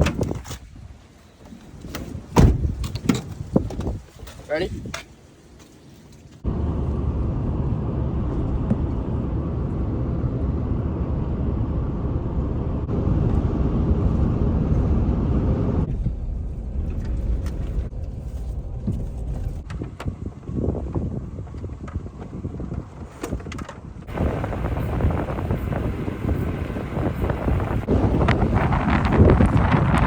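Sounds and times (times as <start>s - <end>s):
vehicle driving rumble: 6.4s - 30.0s.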